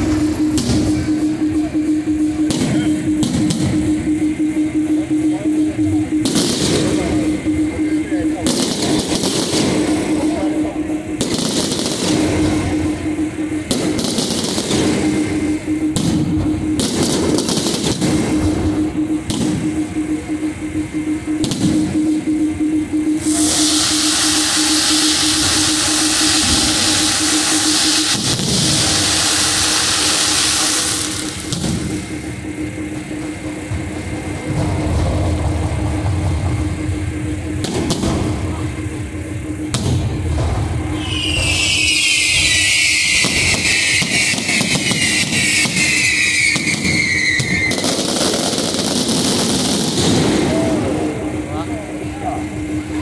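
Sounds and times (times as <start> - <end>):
fireworks hissing and crackling: 0.0 - 3.8, 6.2 - 20.3, 23.2 - 53.0
pulsing low tone: 0.0 - 46.4, 47.0 - 53.0
dense crackling hiss: 23.2 - 33.3
sharp firework cracks: 23.3 - 32.0, 41.0 - 50.5.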